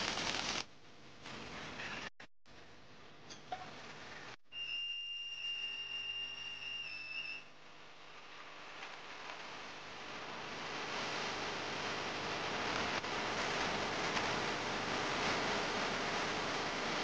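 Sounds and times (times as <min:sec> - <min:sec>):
high-pitched whistling tone: 0:04.5 - 0:07.5.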